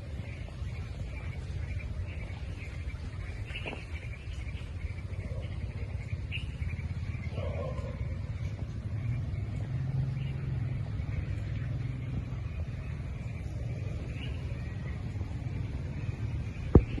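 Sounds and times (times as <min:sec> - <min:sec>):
low hum: 0:00.0 - 0:17.0
low rumble: 0:00.0 - 0:17.0.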